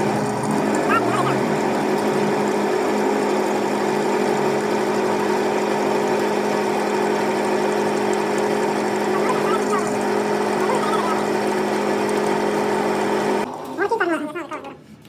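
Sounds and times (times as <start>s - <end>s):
workshop machine humming: 0.0s - 14.2s.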